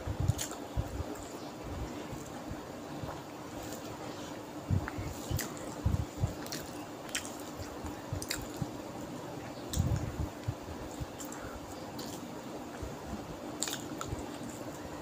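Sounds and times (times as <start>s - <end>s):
faint steady hum: 0.0s - 15.0s
wet chewing: 0.2s - 1.4s, 4.8s - 8.7s, 10.9s - 12.3s, 13.6s - 14.8s.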